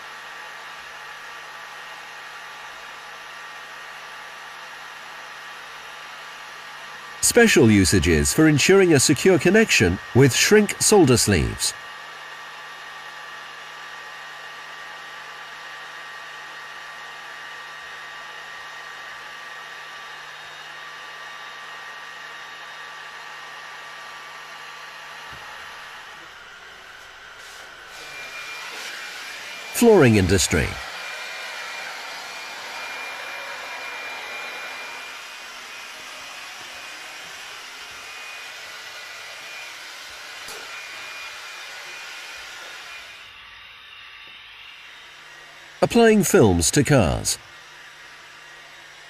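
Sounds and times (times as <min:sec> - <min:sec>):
hot air blower rushing: 0:03.2 - 0:11.8, 0:13.8 - 0:43.6.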